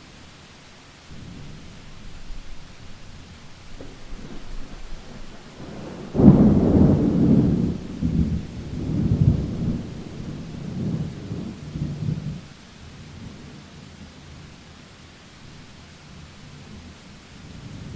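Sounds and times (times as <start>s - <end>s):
steady rain: 0.0s - 17.9s
thunderclap and rumble: 1.1s - 12.4s.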